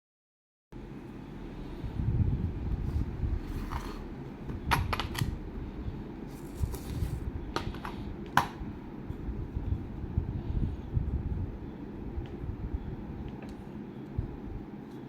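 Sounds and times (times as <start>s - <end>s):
steady low rumble: 0.8s - 14.9s.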